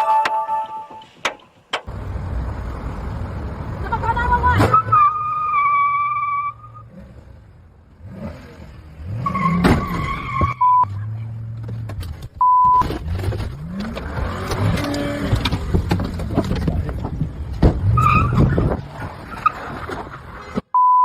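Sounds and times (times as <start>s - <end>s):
road noise: 0.0s - 20.8s
car tyres squealing: 3.9s - 7.3s, 8.0s - 11.9s, 12.8s - 20.6s
short steady beeps: 12.4s - 12.8s, 20.8s - 21.0s.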